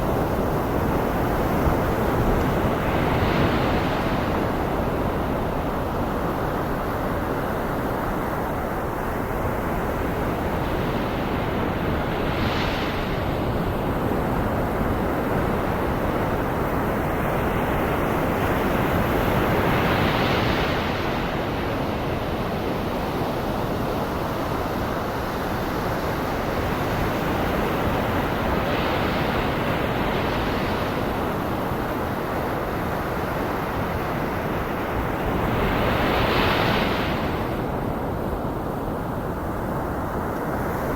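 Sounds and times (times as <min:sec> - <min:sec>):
ocean surf: 0:15.3 - 0:40.9.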